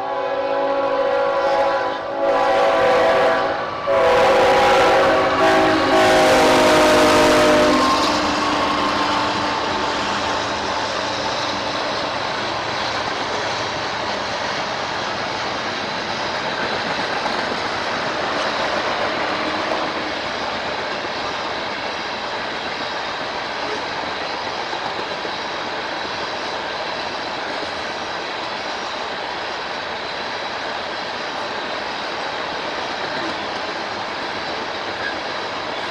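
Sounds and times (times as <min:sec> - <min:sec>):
train horn: 0:00.0 - 0:10.3
train wheels rumbling on rails: 0:00.0 - 0:35.9.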